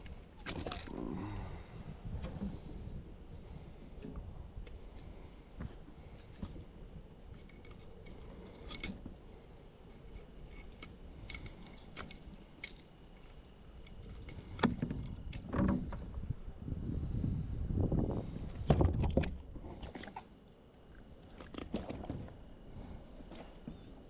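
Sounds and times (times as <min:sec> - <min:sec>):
fishing gear clicking and rattling: 0:00.0 - 0:01.1, 0:06.1 - 0:16.0.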